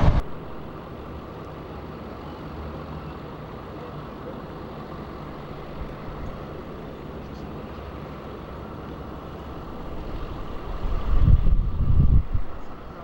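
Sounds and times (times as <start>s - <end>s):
vehicle engine running: 0.0s - 0.3s
loud low rumble: 0.0s - 0.6s.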